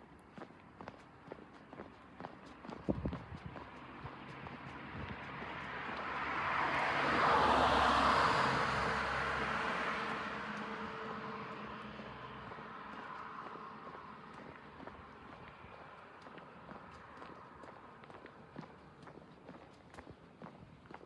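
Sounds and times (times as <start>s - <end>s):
vehicle passing by: 2.8s - 19.0s.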